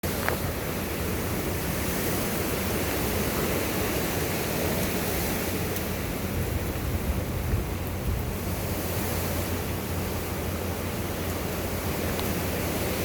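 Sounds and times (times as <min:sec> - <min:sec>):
strong wind rushing: 0:06.0 - 0:09.6.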